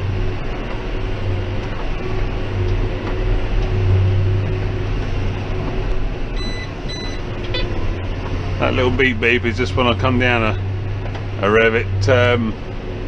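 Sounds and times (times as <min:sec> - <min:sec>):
tractor engine drone: 0:00.0 - 0:13.0
short high beep: 0:06.4 - 0:07.7.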